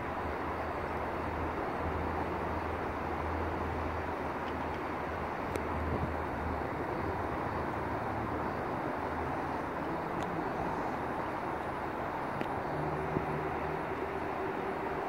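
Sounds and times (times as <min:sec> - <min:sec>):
distant train rumble: 0:00.0 - 0:15.0
faint ticks: 0:12.4 - 0:12.6.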